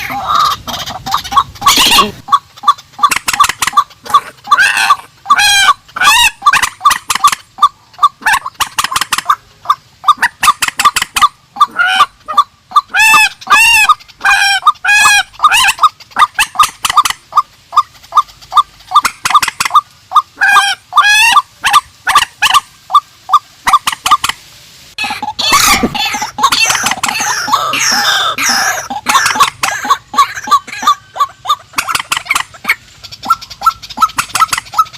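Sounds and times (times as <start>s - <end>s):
harsh rising and falling bird calls: 25.0s - 34.9s.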